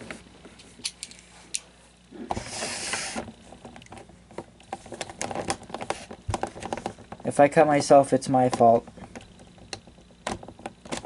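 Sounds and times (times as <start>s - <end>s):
small clicks and taps: 8.4s - 11.0s.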